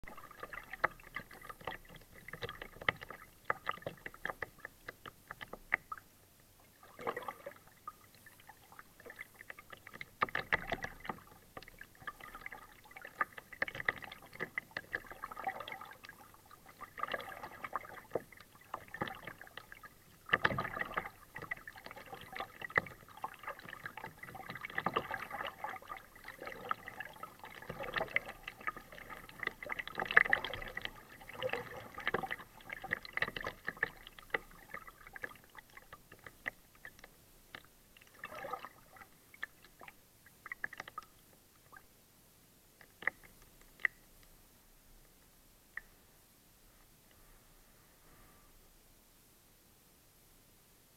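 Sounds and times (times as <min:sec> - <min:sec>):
paddle splashing in water: 0:00.0 - 0:06.0, 0:06.7 - 0:41.0.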